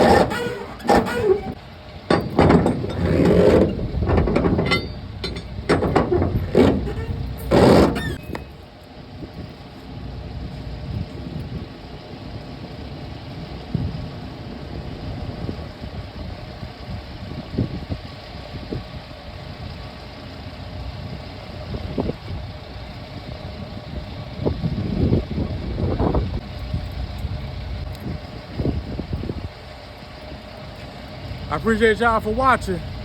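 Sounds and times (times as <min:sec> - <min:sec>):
short knocks and clunks: 0:00.0 - 0:08.5
engine idling: 0:00.0 - 0:33.0.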